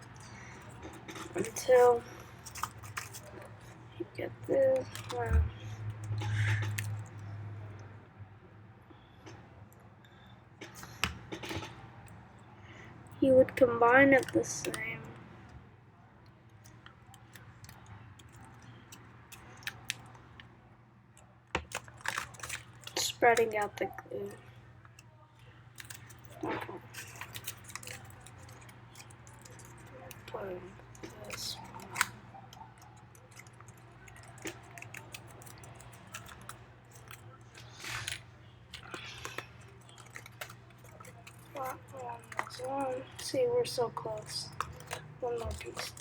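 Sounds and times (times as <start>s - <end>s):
paper rustling and clicking: 0.0s - 7.3s, 10.6s - 12.8s, 13.6s - 15.2s, 16.5s - 20.5s, 21.2s - 46.0s
paper taps and crinkles: 44.2s - 46.0s.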